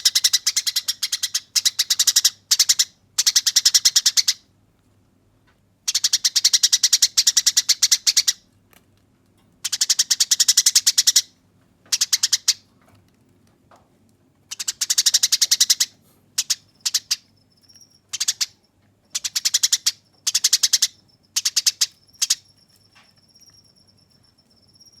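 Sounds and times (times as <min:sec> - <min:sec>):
sparrow chattering call: 0:00.0 - 0:04.4, 0:14.5 - 0:22.5.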